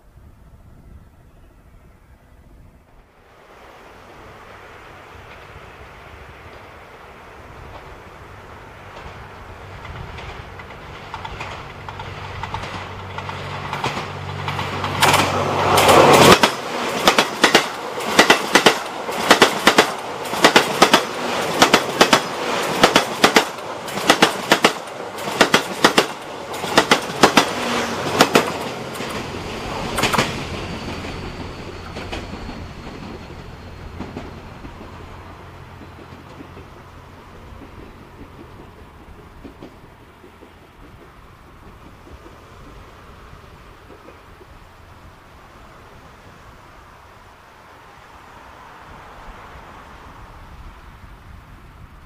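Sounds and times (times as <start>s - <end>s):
train passing with low hum: 0.0s - 52.0s
wheels clacking on rail joints: 7.6s - 44.8s.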